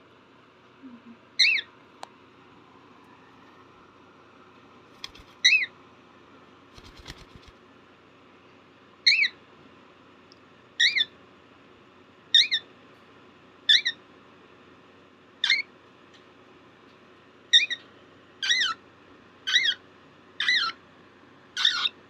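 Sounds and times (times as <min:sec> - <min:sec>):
cockatiel chick chirping: 0:19.5 - 0:19.8, 0:21.6 - 0:22.0.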